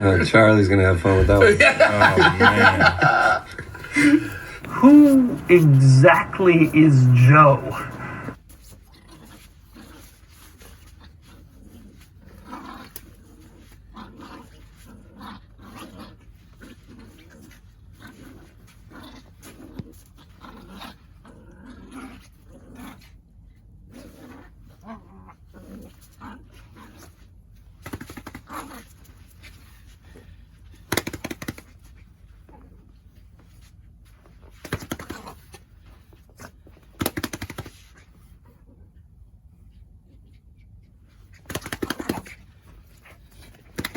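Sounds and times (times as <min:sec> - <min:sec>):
dog growling in play: 0:07.9 - 0:27.2.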